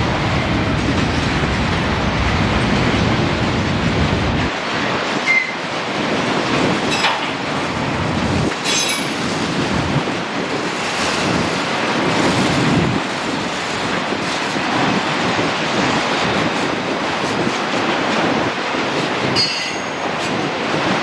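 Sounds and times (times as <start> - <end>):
train wheels rumbling on rails: 0.0 - 21.0
wheel squeals: 5.2 - 5.6.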